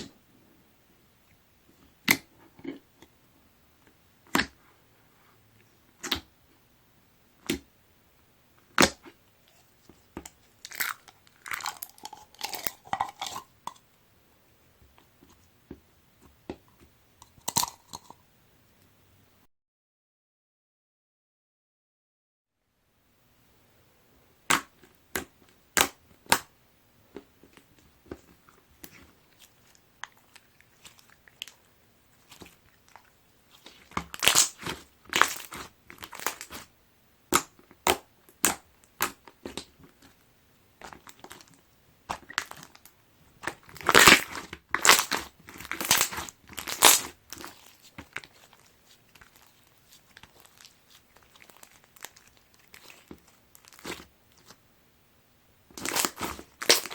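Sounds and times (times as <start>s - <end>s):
slime beads crackling and popping: 10.6s - 13.4s, 32.2s - 36.7s, 40.8s - 54.5s, 55.7s - 56.9s.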